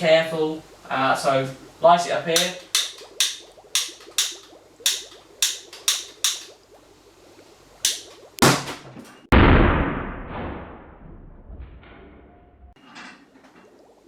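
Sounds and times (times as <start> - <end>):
gas ignition bang: 7.8 - 10.8.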